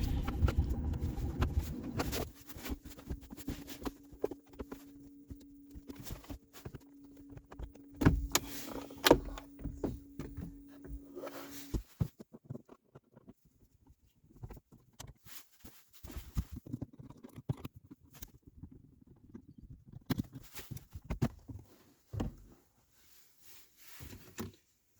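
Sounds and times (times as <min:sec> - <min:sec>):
electric motor hum: 0:00.0 - 0:02.3.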